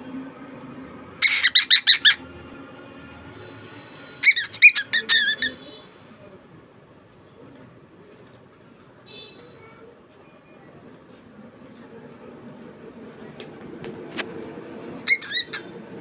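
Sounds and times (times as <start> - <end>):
bird shrill squawks: 1.2 - 2.2, 4.1 - 5.7, 15.0 - 15.7.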